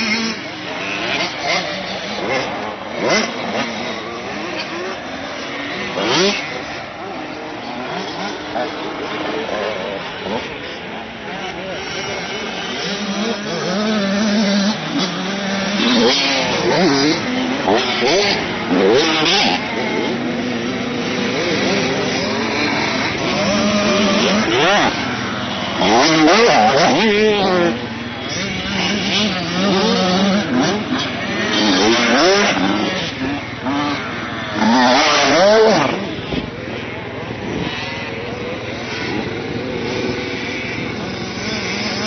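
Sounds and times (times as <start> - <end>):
motocross bike engines revving: 0.0 - 42.0.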